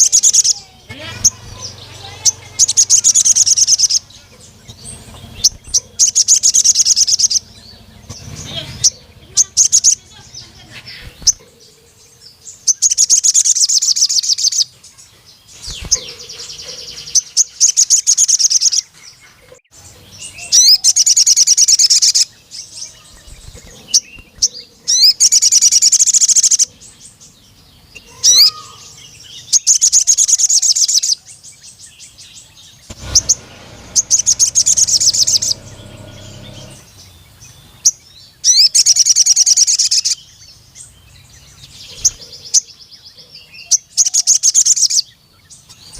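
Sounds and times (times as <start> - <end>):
sunbird trilling song: 0.0 - 45.9
low rumble: 32.9 - 37.0.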